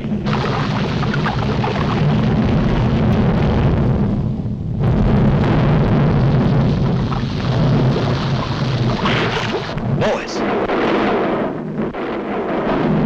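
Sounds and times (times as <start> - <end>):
volcanic eruption rumbling: 0.0 - 13.0.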